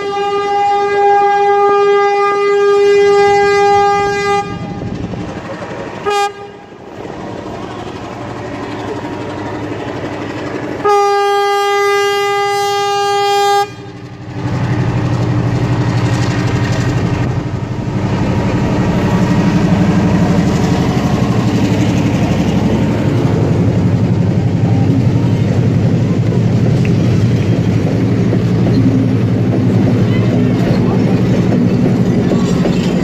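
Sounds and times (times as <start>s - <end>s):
train horn blast: 0.0s - 5.0s, 6.0s - 6.8s, 10.8s - 14.0s
diesel train rumble: 0.0s - 33.0s.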